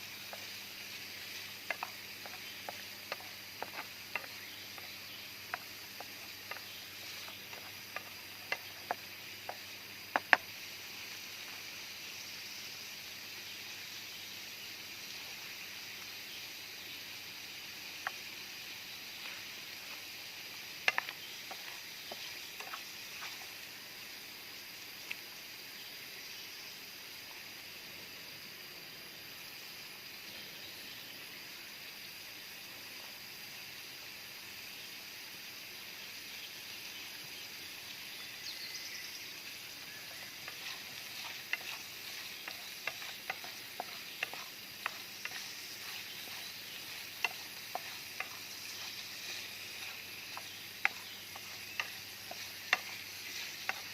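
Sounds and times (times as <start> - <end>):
food sizzling in frying: 0.0 - 13.9, 14.5 - 25.1, 39.0 - 53.9
stirring clicks and taps: 0.3 - 0.5, 1.5 - 10.5, 20.8 - 23.6, 40.0 - 53.9.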